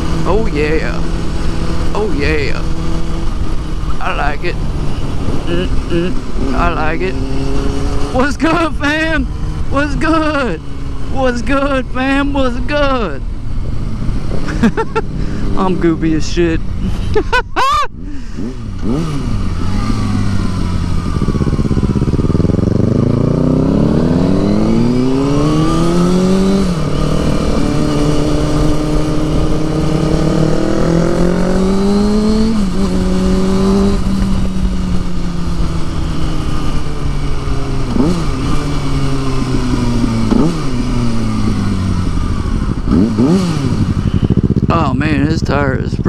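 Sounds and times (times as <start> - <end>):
motorcycle engine accelerating: 0.0 - 46.0
motorcycle engine rev blips: 18.4 - 46.0.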